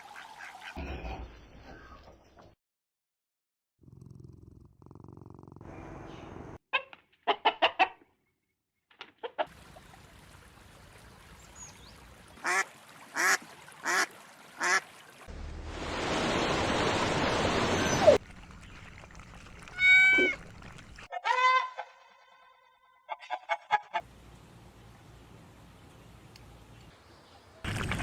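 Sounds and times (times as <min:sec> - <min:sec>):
waterfowl calling: 0:12.4 - 0:15.0, 0:17.2 - 0:22.1.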